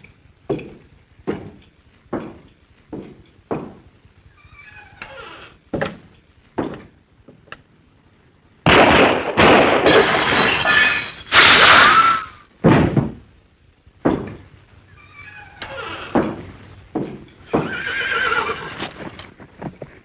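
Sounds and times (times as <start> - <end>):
cartoon glass crashing and shattering: 8.7 - 13.0.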